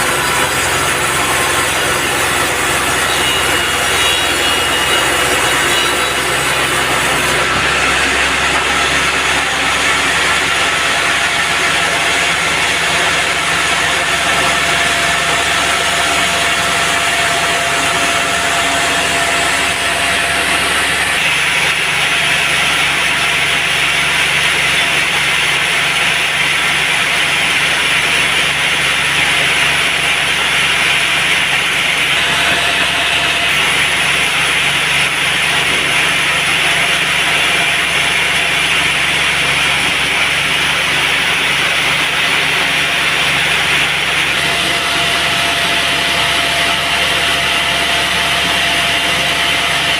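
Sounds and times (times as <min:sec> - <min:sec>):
band saw cutting log: 0:00.0 - 0:49.9
sawmill engine: 0:00.0 - 0:49.9.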